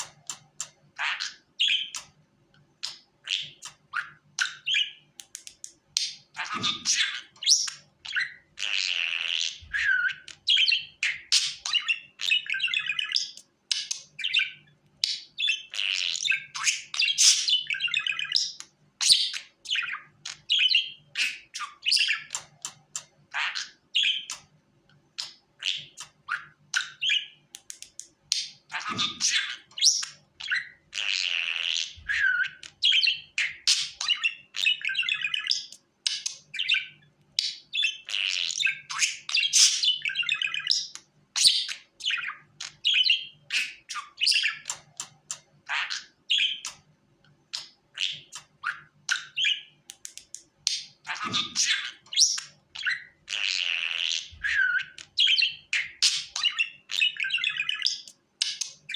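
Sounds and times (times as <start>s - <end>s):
budgerigar chirping and warbling: 0.0s - 2.2s, 2.8s - 24.5s, 25.2s - 46.9s, 47.5s - 58.9s.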